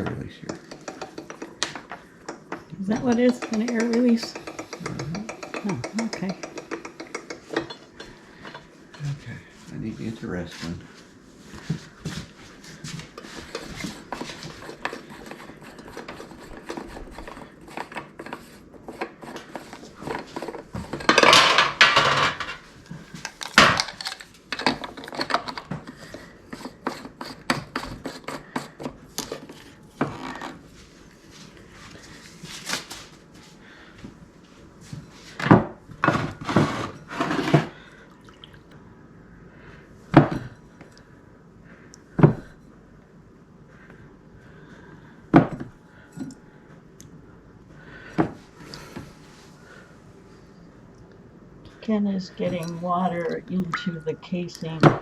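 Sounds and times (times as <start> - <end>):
kitchen utensils clattering: 0.0 - 9.1, 19.5 - 25.9.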